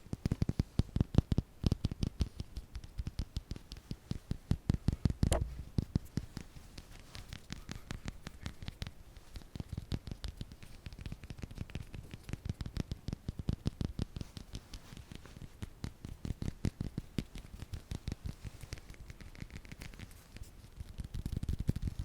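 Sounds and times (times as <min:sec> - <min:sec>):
fingertip tapping: 0:05.3 - 0:05.9.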